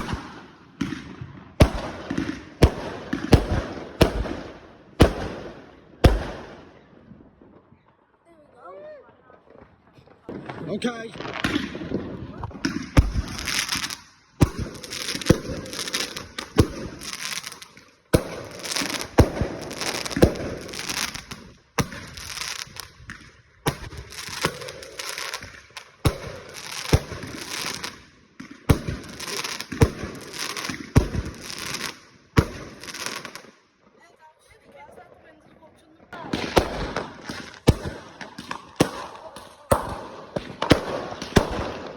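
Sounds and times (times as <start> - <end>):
firework bangs: 0.0 - 6.8, 9.4 - 33.6, 34.5 - 41.9
firework crackling: 10.0 - 33.5, 34.1 - 41.9.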